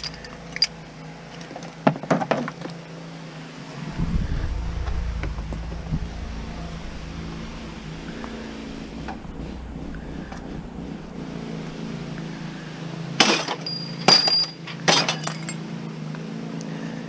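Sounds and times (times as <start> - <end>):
steady low hum: 3.4 - 13.5.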